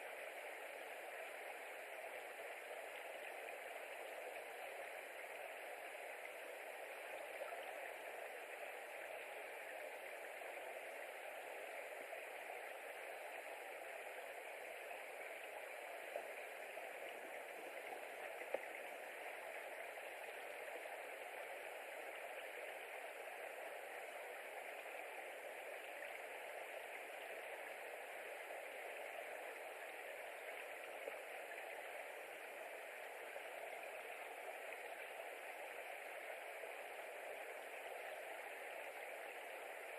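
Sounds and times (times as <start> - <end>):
faint click: 18.3 - 18.7.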